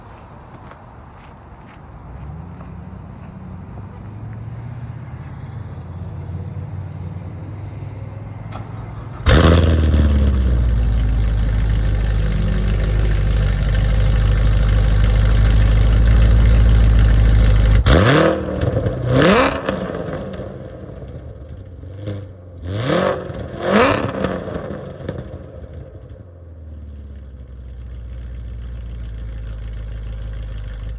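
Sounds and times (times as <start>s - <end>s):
car engine running: 2.0s - 30.9s
engine revving: 2.3s - 30.9s.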